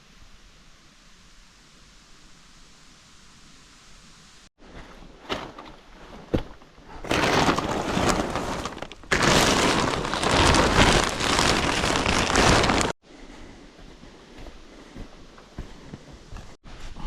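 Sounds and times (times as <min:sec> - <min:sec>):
scattered raindrops: 0:07.0 - 0:13.0
heavy rain downpour: 0:07.1 - 0:12.9.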